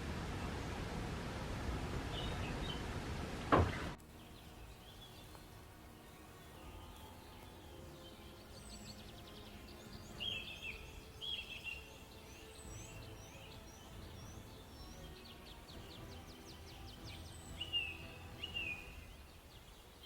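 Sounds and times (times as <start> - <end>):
faint low rumble: 0.0 - 5.6
birds chirping phrases: 3.7 - 20.0.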